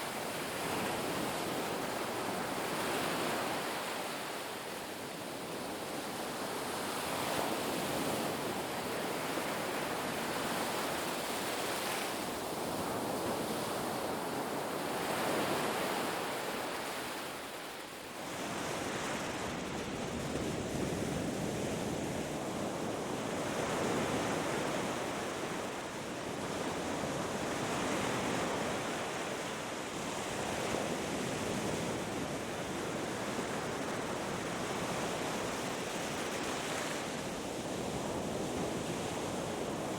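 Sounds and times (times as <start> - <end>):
ocean surf washing onto beach: 0.0 - 39.9.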